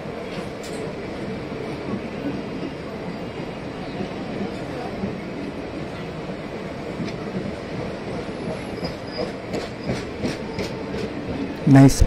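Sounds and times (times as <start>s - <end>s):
wheels clattering on rails: 6.9s - 11.5s.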